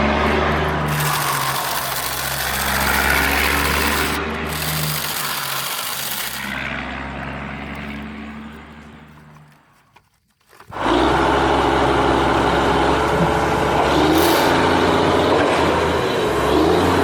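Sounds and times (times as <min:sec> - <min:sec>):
small electric motors whirring: 0:00.9 - 0:09.3, 0:10.4 - 0:14.9
gritty rasping scrape: 0:00.9 - 0:14.7.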